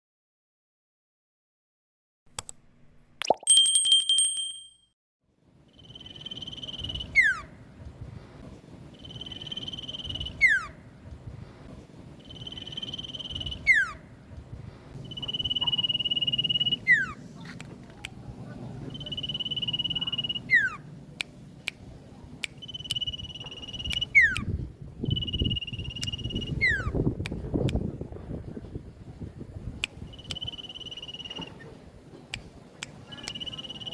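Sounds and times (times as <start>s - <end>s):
high whistled bird call: 9.0s - 10.8s, 12.2s - 14.0s, 15.0s - 17.2s, 18.9s - 20.8s, 22.6s - 27.0s, 30.0s - 31.6s, 33.1s - 33.9s.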